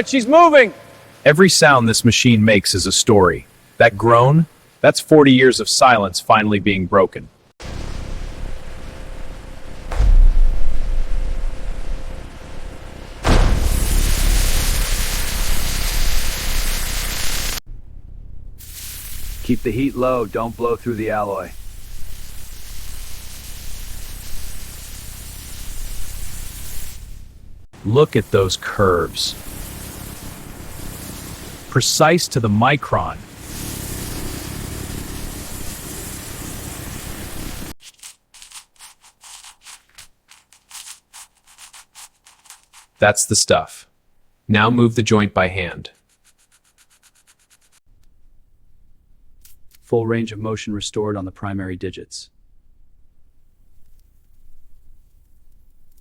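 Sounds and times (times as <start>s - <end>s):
loud steady hiss: 0.0s - 6.0s, 7.6s - 17.6s, 18.6s - 37.8s
low rumble: 7.6s - 16.7s, 17.4s - 19.0s
sanding strokes: 37.3s - 43.0s, 46.0s - 47.8s.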